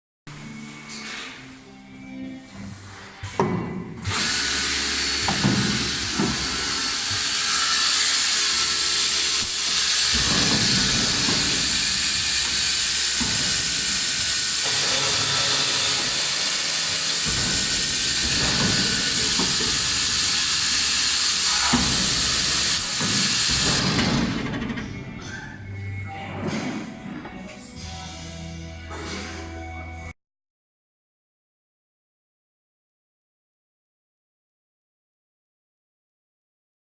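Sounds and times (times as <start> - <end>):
drilling machine running: 4.0 - 25.6
loud steady hiss: 4.4 - 24.0.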